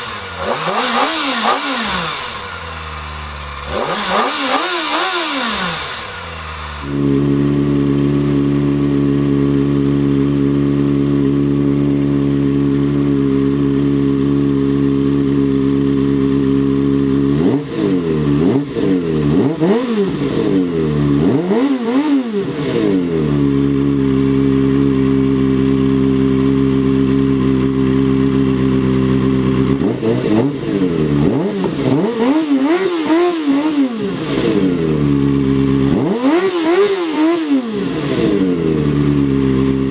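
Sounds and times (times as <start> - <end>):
engine throttle blips: 0.0 - 13.0, 27.8 - 39.9
motorcycle engine idling: 0.0 - 39.9.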